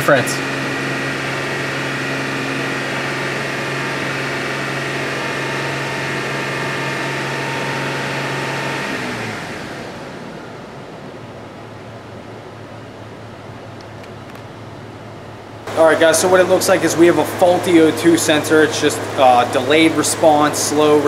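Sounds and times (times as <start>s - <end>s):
car engine at raised revs: 0.0s - 21.0s.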